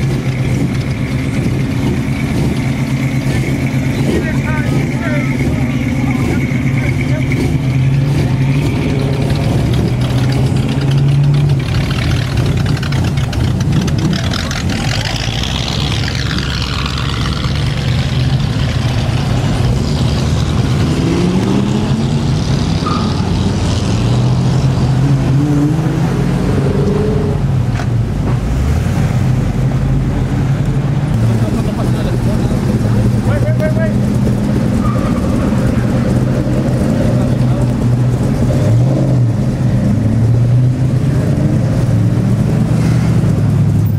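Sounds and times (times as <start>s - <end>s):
car engine idling and revving: 0.0s - 43.9s.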